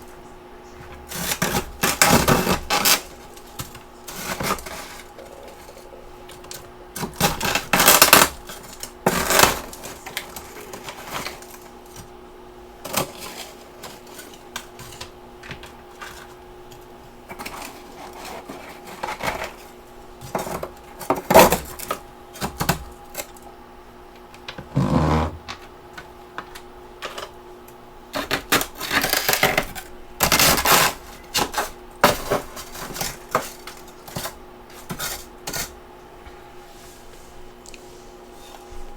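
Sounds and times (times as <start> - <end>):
faint steady hum: 0.0 - 38.9
ice being chewed: 1.2 - 12.1.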